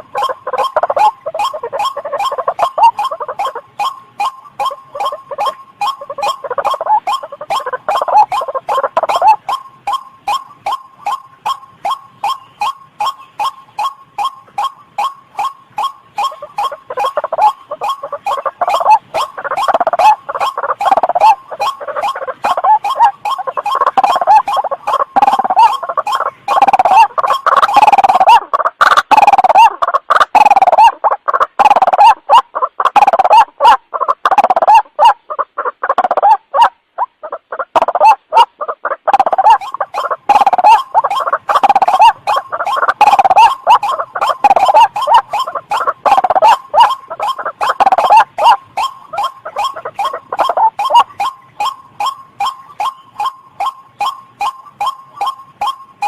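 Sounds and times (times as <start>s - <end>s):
waterhen calling: 0.0s - 56.0s.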